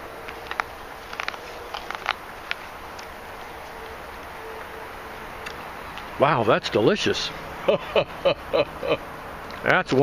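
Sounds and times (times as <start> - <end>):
corn being chewed: 0.0 - 6.2
steady outdoor hiss: 0.0 - 10.0.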